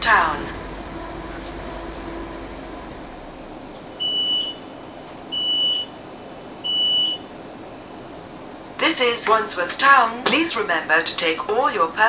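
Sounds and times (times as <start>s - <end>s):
train cabin hum: 0.0s - 12.0s
high-pitched door warning beeps: 4.0s - 4.7s, 5.3s - 6.0s, 6.7s - 7.3s.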